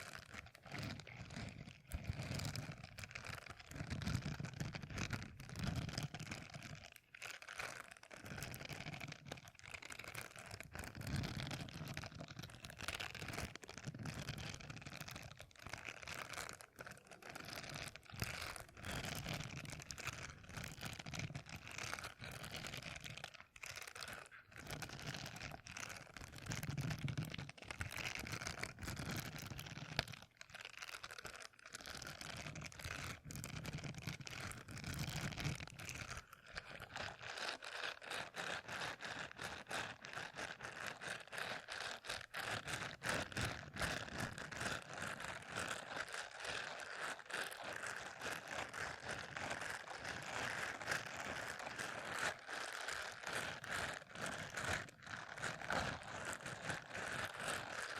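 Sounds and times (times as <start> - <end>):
rapid small crackles and scratches: 0.0 - 57.9.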